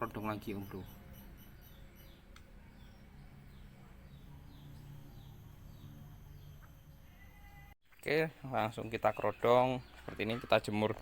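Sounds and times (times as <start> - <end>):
faint bird chirps: 0.0 - 7.8
low steady hum: 0.0 - 7.8.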